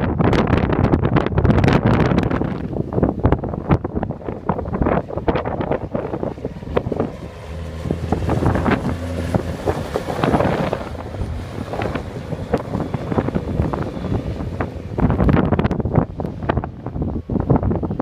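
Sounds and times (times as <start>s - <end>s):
wind buffeting microphone: 0.0s - 18.0s
diesel engine running: 4.0s - 18.0s.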